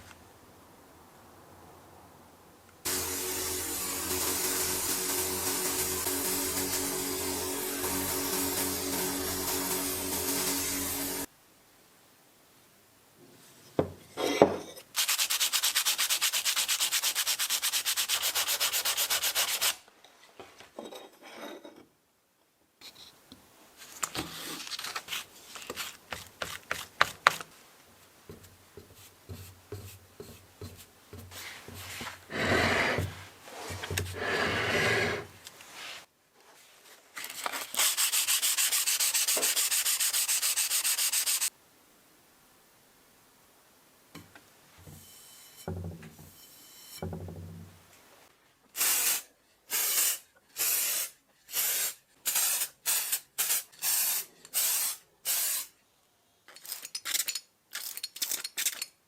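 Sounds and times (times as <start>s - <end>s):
quiet scraping: 31.3s - 37.1s.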